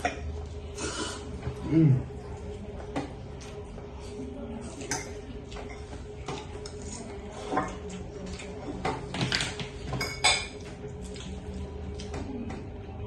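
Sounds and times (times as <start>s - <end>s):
utensils clinking against bowl: 4.8s - 11.2s.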